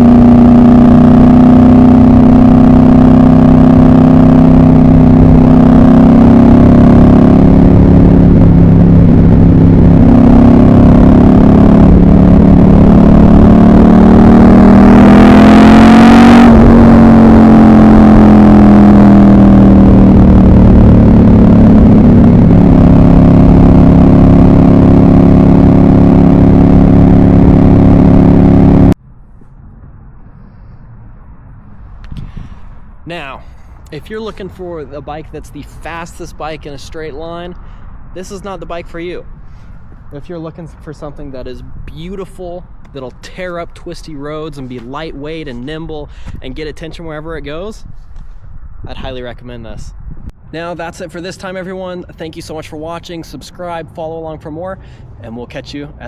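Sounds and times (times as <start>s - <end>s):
motorcycle engine running: 0.0s - 29.0s
vehicle passing by: 0.0s - 56.0s.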